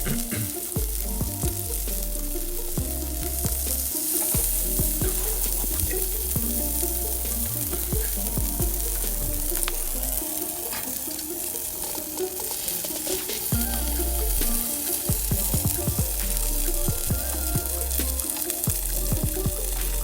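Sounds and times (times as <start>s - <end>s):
background music: 0.0s - 20.0s
chicken skewers sizzling: 0.0s - 20.0s.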